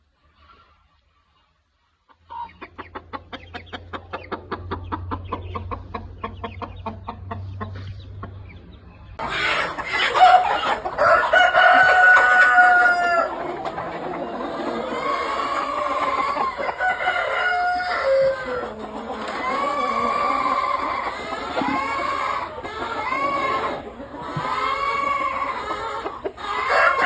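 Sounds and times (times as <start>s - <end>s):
chickens clucking: 0.1s - 27.0s
rooster crowing: 9.2s - 22.4s, 26.4s - 27.0s.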